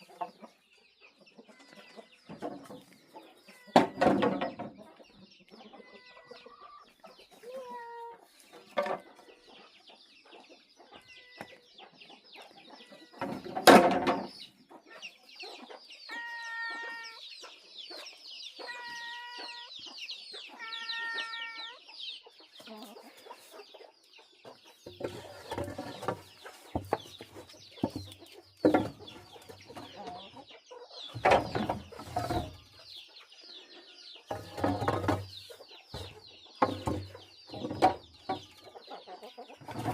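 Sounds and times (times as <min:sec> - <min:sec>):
chickens clucking: 0:00.0 - 0:39.9
high chirps chatter: 0:14.8 - 0:31.2.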